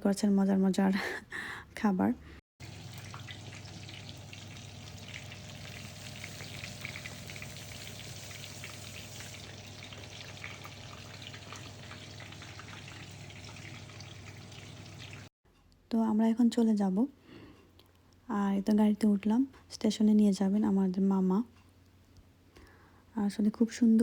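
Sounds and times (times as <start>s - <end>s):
low hum: 2.6s - 15.2s
food sizzling in hot oil: 2.6s - 15.3s.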